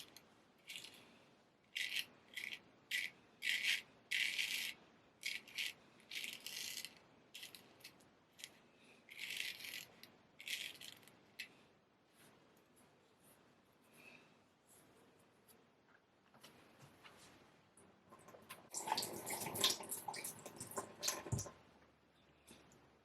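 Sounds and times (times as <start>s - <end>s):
straight razor scraping: 1.8s - 11.5s.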